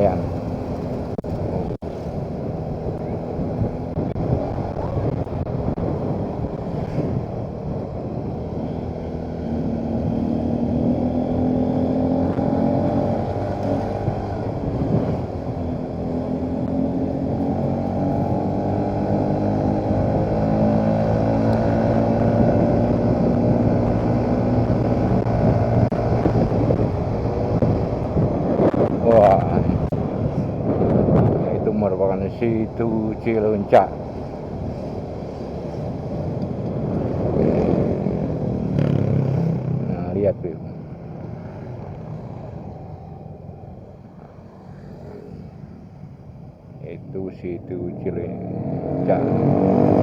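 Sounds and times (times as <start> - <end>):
motorcycle engine revving: 0.0 - 46.2, 47.6 - 50.0.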